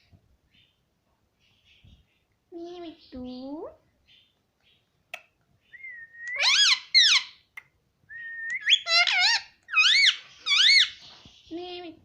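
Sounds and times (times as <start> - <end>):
parrot whistling: 5.8 - 7.3, 8.1 - 11.0.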